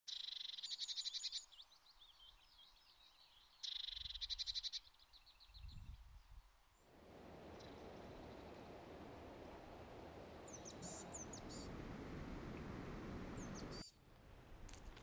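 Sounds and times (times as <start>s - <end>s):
steady hiss: 6.9s - 15.0s
low rumbles: 7.0s - 15.0s
songbird trilling: 10.4s - 11.7s.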